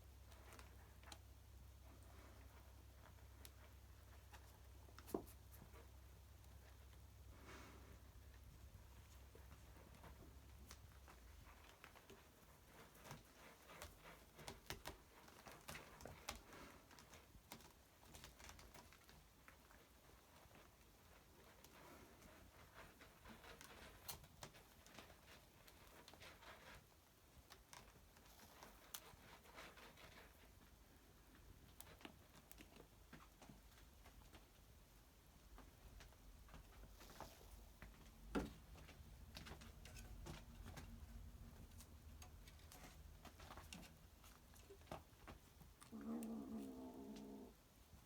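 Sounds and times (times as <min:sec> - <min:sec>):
kittens chewing: 0:35.3 - 0:48.0.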